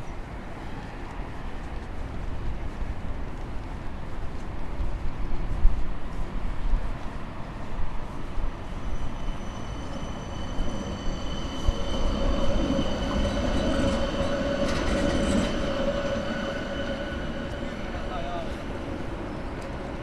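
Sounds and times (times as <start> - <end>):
street noise: 0.0 - 20.0
tram wheels squealing on rails: 7.2 - 20.0.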